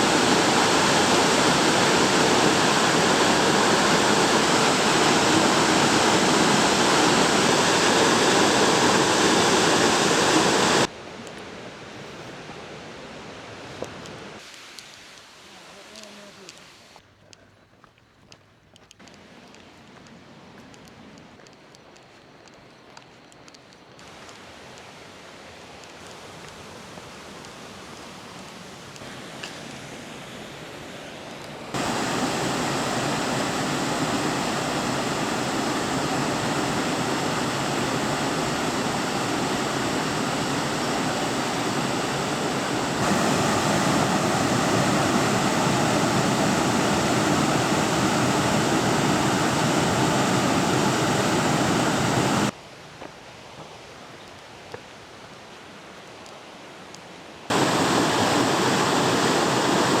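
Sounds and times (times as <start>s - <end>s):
waterfall roar: 0.0s - 10.9s, 26.0s - 52.5s, 57.5s - 60.0s.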